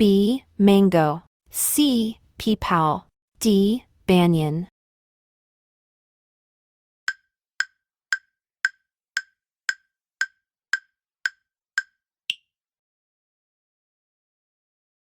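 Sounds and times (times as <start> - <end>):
woodblock-like timer ticks: 7.1 - 12.5.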